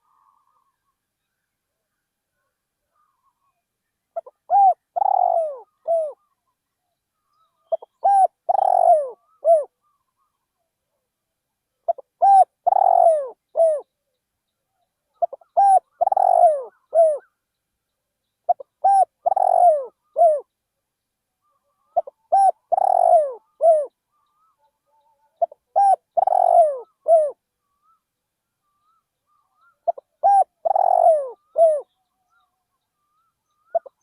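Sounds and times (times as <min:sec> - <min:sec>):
dove cooing: 0:04.2 - 0:06.3, 0:07.6 - 0:10.3, 0:11.8 - 0:13.9, 0:15.2 - 0:17.3, 0:18.5 - 0:20.5, 0:21.4 - 0:27.4, 0:28.7 - 0:32.0, 0:33.6 - 0:34.0.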